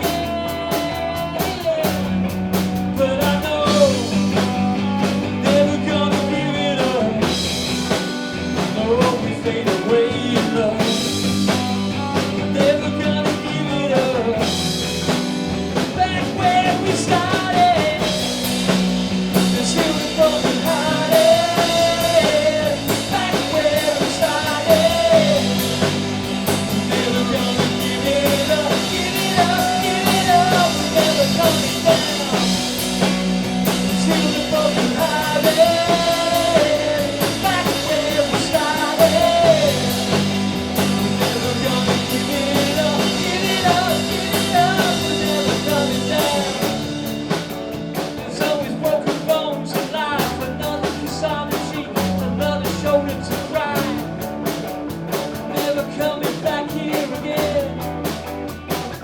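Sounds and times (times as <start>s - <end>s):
live rock band playing: 0.0s - 59.0s
melodic lead guitar line: 0.0s - 59.0s.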